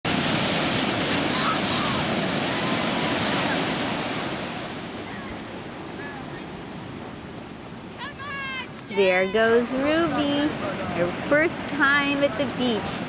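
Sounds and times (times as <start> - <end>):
ocean waves breaking: 0.0 - 13.0.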